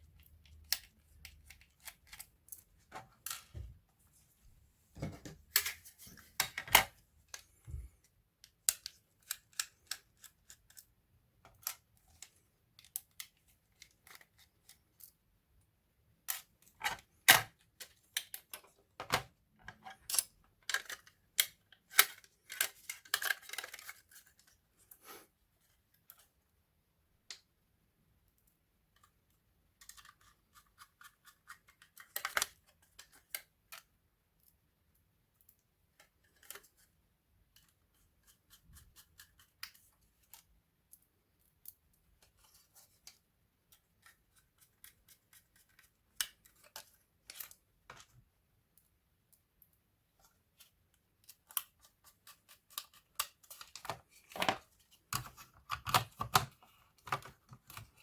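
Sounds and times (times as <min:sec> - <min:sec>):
laptop parts clicking and scraping: 0:00.0 - 0:03.6, 0:05.2 - 0:15.2, 0:16.4 - 0:25.0, 0:29.8 - 0:33.9, 0:42.2 - 0:48.2, 0:50.2 - 0:58.0.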